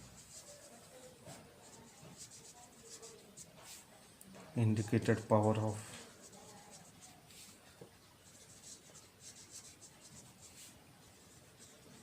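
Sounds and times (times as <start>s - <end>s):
pen scratching while writing: 0.0s - 3.9s, 8.2s - 12.0s.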